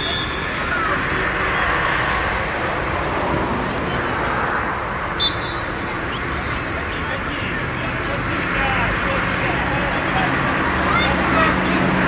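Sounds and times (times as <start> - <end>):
sharp high whistle: 0.0 - 0.5, 5.2 - 5.7
outdoor background noise: 0.0 - 12.0.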